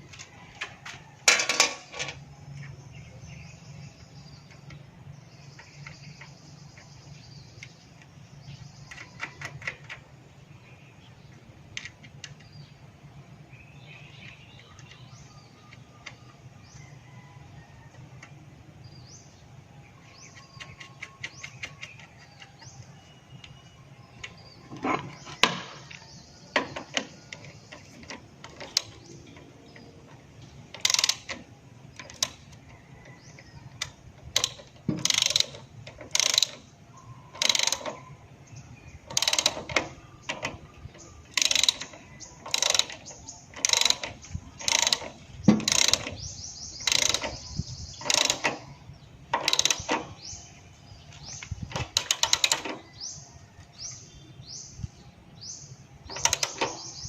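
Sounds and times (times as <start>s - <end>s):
sharp mechanical rasps: 33.9s - 36.7s, 41.2s - 48.7s, 49.4s - 50.3s.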